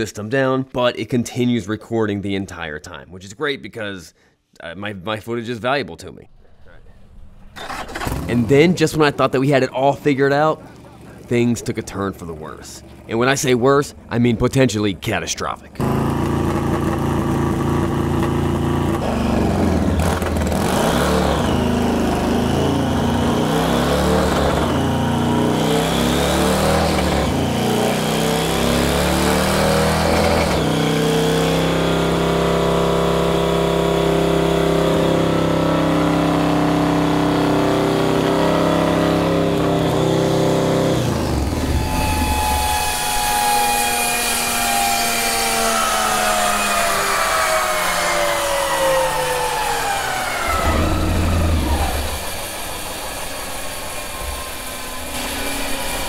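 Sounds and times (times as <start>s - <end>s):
motorcycle engine revving: 7.4s - 14.3s, 15.7s - 56.0s
falling whine of coasting wheel: 38.6s - 56.0s.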